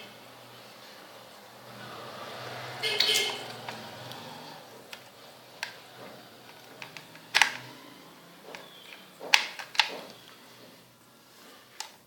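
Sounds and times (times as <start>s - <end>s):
plastic clicks and knocks: 8.5s - 10.2s.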